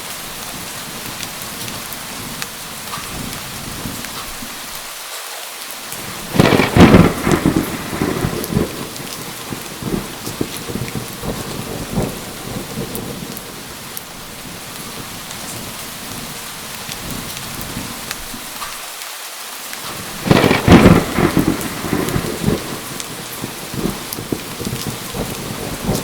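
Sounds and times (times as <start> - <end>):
heavy rain falling: 0.0 - 26.0
thunderclap rumbling: 0.4 - 4.6, 6.0 - 18.4, 19.8 - 26.0.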